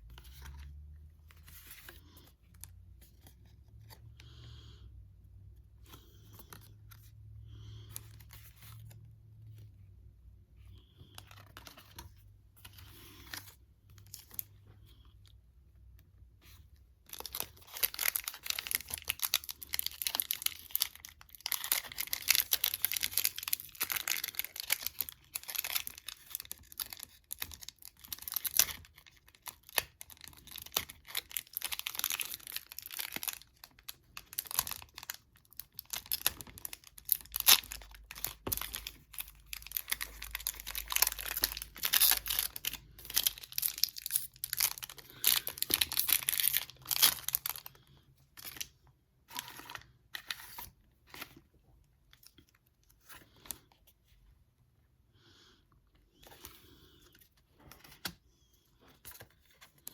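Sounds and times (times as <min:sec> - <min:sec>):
foil wrapper tearing and crinkling: 0:17.1 - 0:47.7.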